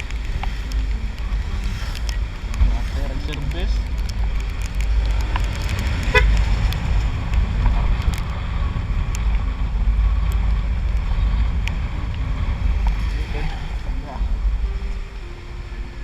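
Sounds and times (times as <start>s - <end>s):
sharp ticks: 0.0s - 13.4s
wind buffeting microphone: 0.0s - 16.0s
vehicle horn toot: 6.0s - 6.5s.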